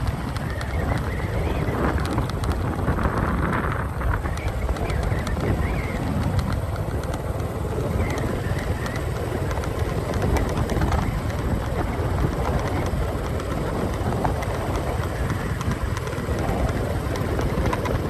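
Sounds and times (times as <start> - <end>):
motorcycle engine and road noise: 0.0 - 18.0
wind buffeting microphone: 0.0 - 18.0.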